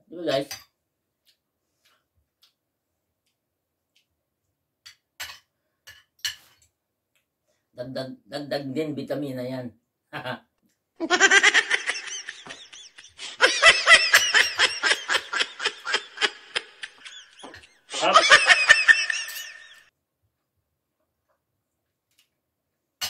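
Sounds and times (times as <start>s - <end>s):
high-pitched laughter: 11.0s - 19.9s.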